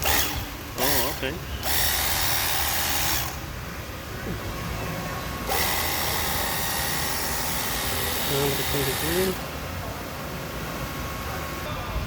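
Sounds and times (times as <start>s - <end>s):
pressure washer motor whining: 0.0s - 3.6s, 4.9s - 9.6s.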